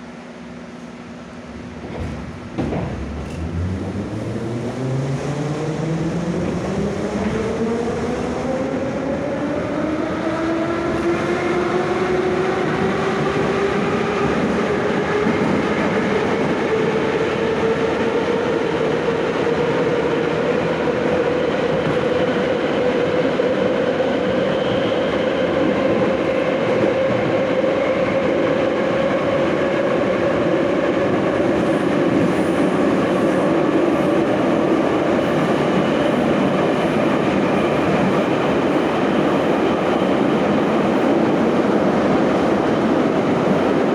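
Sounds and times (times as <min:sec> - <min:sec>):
subway traction motors whining: 0:00.0 - 0:43.9.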